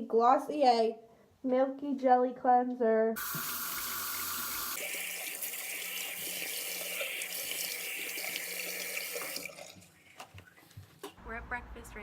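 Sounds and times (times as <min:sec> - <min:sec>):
tap water running into sink: 0:03.2 - 0:09.9.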